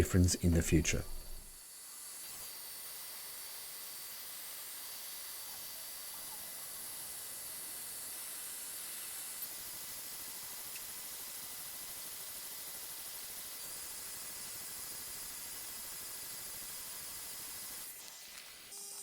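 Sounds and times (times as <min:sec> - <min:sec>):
cooling fan hiss with high whine: 0:00.0 - 0:19.0.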